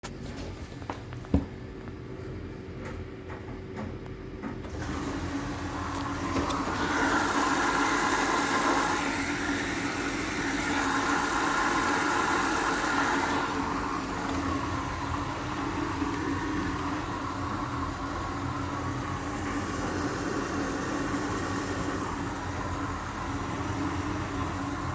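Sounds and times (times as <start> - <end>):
washing machine motor tone: 1.3 - 24.9
washing machine click: 2.8 - 7.1.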